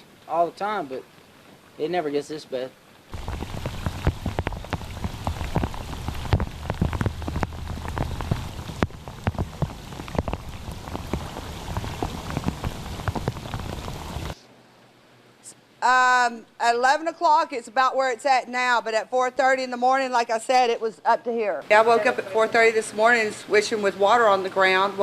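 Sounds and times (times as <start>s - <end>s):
heavy rain on hard surfaces: 0.0s - 14.4s, 21.6s - 25.0s.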